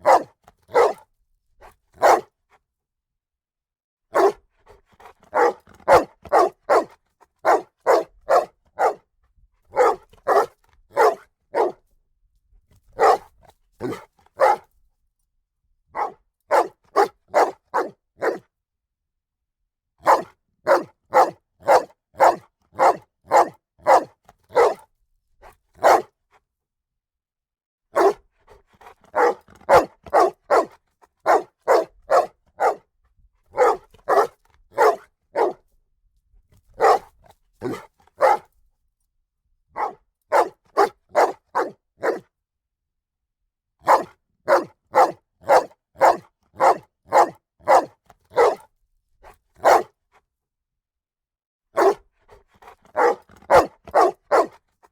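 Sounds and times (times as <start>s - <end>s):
dog barking: 0.0s - 2.4s, 4.1s - 9.1s, 9.7s - 11.8s, 12.9s - 14.7s, 15.9s - 18.5s, 20.0s - 24.9s, 25.8s - 26.2s, 27.9s - 32.9s, 33.5s - 35.7s, 36.7s - 38.5s, 39.8s - 42.3s, 43.8s - 48.7s, 49.6s - 50.0s, 51.8s - 54.6s.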